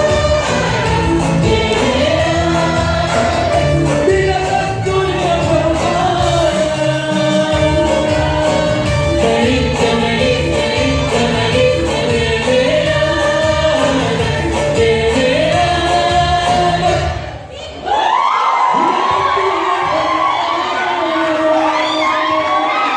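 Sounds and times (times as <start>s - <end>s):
band with steady beat: 0.0s - 17.2s
group singing a hymn: 0.0s - 17.4s.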